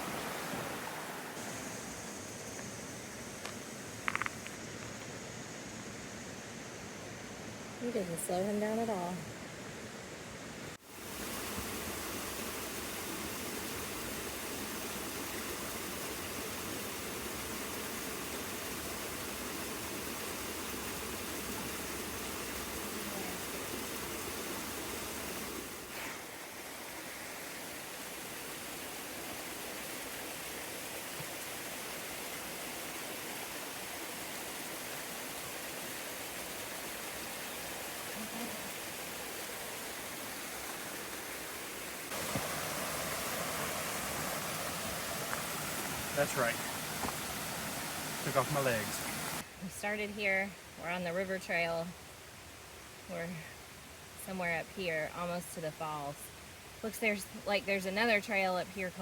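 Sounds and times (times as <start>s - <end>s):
river water rushing: 0.0s - 2.4s, 10.8s - 49.6s.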